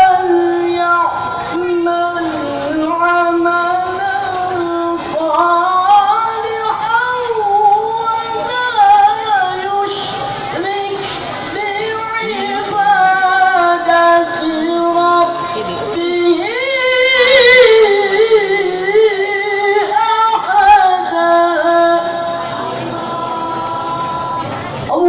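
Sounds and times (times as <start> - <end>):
child chanting recitation: 11.7 - 25.0.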